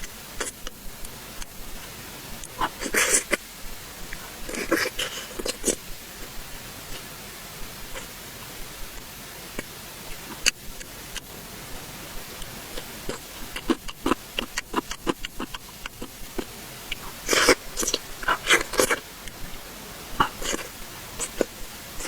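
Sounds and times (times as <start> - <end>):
chewing mouth clicks and smacks: 12.4 - 19.4.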